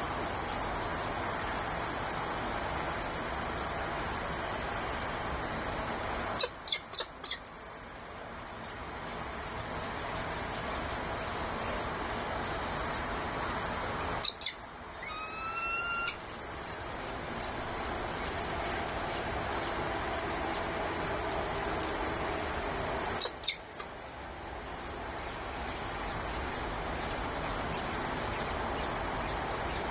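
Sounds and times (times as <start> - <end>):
steady hiss: 0.0 - 6.4
bird calling: 6.4 - 7.4, 14.2 - 16.2, 23.2 - 24.0.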